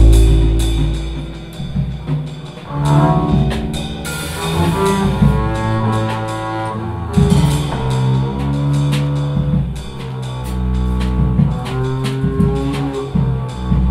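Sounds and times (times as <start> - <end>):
sustained melodic notes: 0.0 - 4.8
double bass: 0.0 - 13.9
drum kit with cymbals: 0.0 - 13.9.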